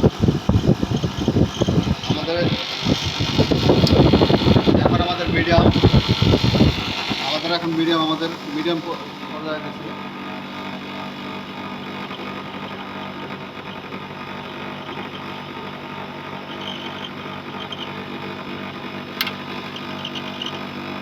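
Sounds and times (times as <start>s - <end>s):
air conditioner humming: 0.0s - 21.0s
sharp click: 19.2s - 19.4s.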